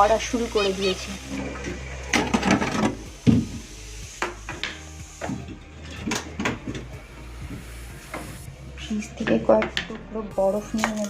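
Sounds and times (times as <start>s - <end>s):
objects rubbing and scraping: 1.2s - 3.7s, 4.3s - 10.0s
objects knocking: 2.1s - 3.6s.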